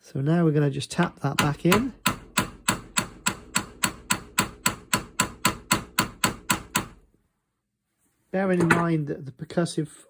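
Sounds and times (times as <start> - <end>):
small hammer tapping steel: 1.3 - 7.0.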